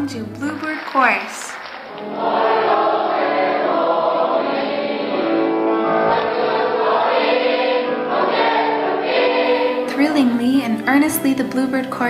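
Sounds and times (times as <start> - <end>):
youth choir singing in harmony: 1.9 - 9.9.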